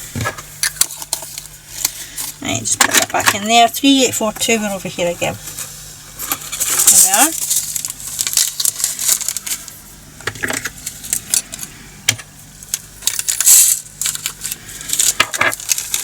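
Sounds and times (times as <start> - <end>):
resin beads rattling into containers: 6.6 - 9.8, 12.7 - 16.0.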